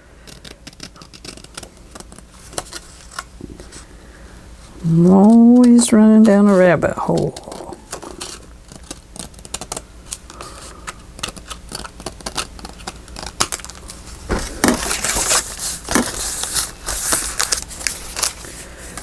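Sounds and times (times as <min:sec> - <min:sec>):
scissors snipping paper: 0:00.2 - 0:03.3, 0:05.1 - 0:14.0
paper rustling and crinkling: 0:00.4 - 0:03.9, 0:05.2 - 0:19.0.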